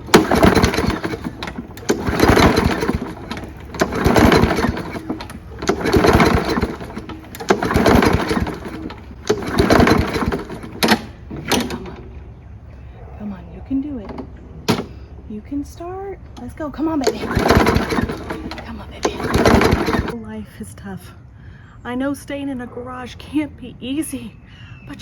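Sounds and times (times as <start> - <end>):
engine turning over: 0.0 - 12.2, 16.6 - 20.2
lawn mower pull-start: 0.0 - 12.2, 16.4 - 20.2.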